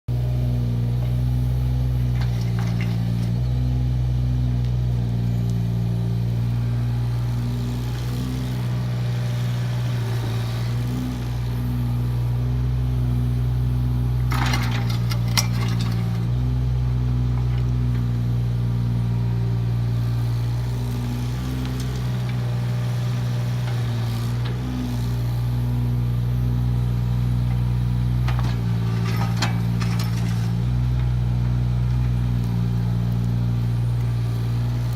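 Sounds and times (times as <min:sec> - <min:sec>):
excavator diesel engine running: 0:00.1 - 0:34.9
excavator bucket clanking and scraping: 0:02.0 - 0:03.4, 0:14.2 - 0:16.4, 0:27.2 - 0:32.3.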